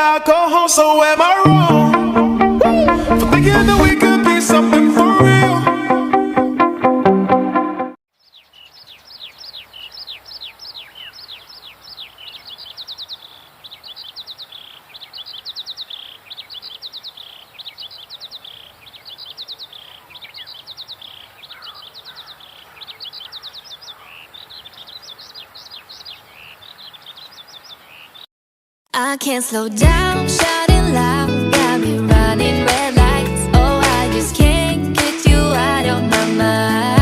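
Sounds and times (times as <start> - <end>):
songbirds singing trills: 8.2 - 28.3.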